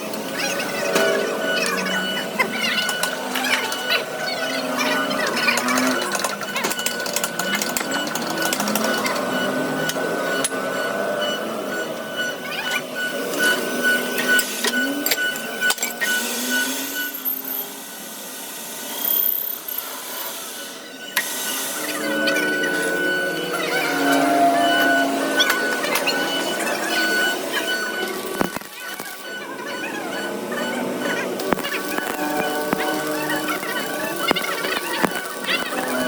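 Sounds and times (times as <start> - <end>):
machine whining: 0.0 - 36.0.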